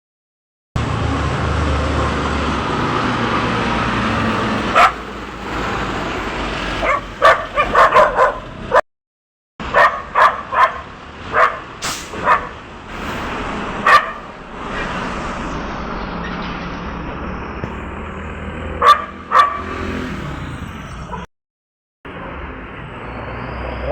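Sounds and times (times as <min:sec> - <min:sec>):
road traffic: 0:00.8 - 0:08.8, 0:09.6 - 0:21.3, 0:22.1 - 0:23.9
vehicle engine running: 0:00.8 - 0:08.8, 0:09.6 - 0:20.1
dog barking: 0:04.7 - 0:05.1, 0:06.8 - 0:08.8, 0:09.7 - 0:12.6, 0:13.8 - 0:14.3, 0:18.8 - 0:19.8.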